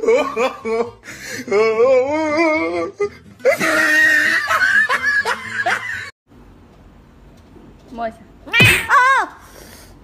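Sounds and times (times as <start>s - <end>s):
person laughing loudly: 3.4s - 6.1s.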